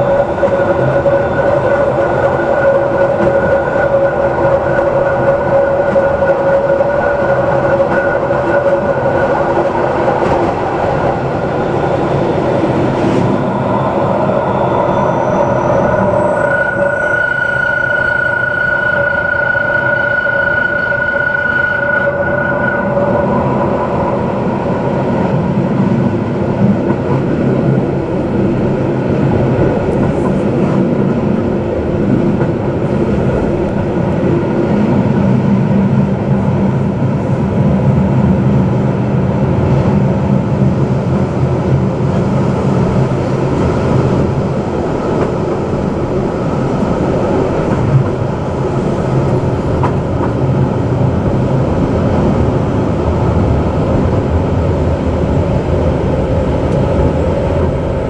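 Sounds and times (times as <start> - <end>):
high steady whine: 0.0 - 26.9
train wheels rumbling on rails: 0.0 - 58.0.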